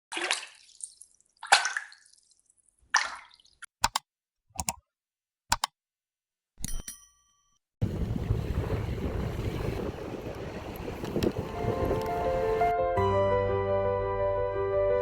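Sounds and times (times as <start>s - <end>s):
water splashes: 0.0s - 3.7s, 7.8s - 12.7s.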